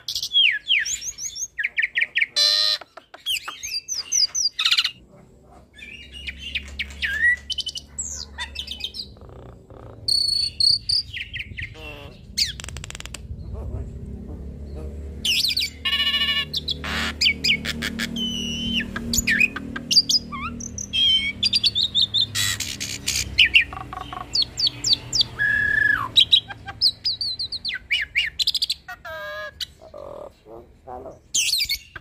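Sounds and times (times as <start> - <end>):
starling singing: 0.0 - 32.0
steady low hum: 7.8 - 22.4.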